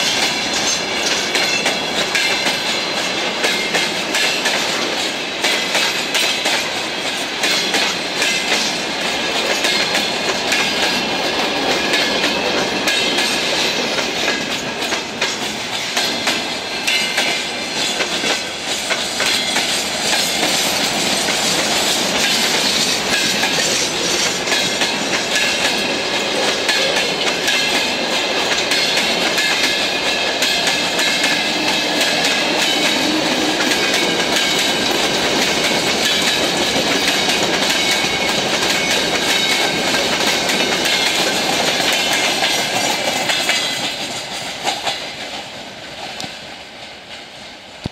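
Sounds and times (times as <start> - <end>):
freight train wheels clattering: 0.0 - 47.9.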